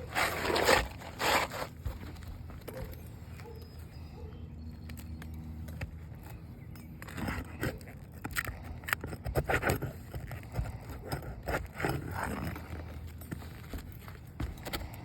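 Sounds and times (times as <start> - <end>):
tool scraping shingles: 0.0 - 2.8, 5.8 - 15.0.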